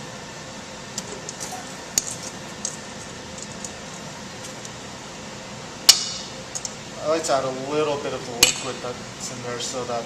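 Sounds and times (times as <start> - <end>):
kitchen hum: 0.6 - 5.8.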